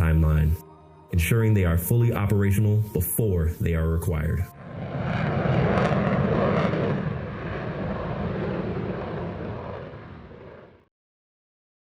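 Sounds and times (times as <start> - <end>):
military aircraft engine rushing: 2.9 - 10.9.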